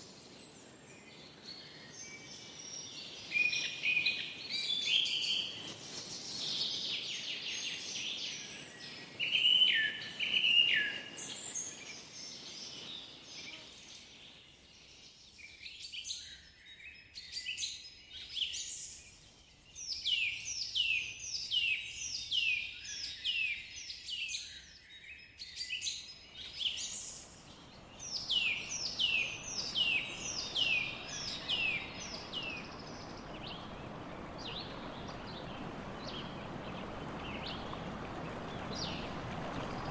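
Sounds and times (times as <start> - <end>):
songbirds singing: 0.0 - 39.9
faint steady hiss: 25.9 - 39.9.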